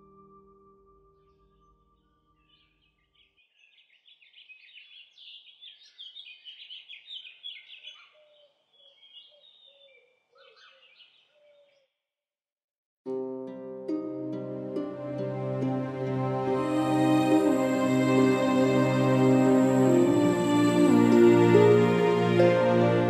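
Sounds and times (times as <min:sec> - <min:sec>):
birds chirping and twittering: 0:01.2 - 0:11.9
plucked harp-like music: 0:13.1 - 0:23.0.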